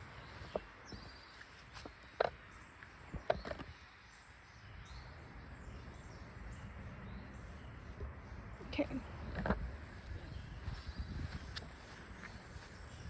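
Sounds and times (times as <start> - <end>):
footsteps outdoors: 0.0 - 5.2, 7.9 - 13.0.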